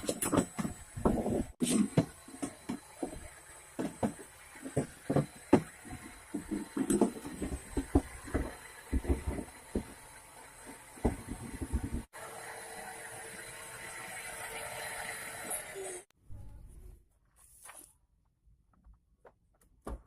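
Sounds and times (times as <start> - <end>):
knocks and rustling in car cabin: 11.0 - 12.1.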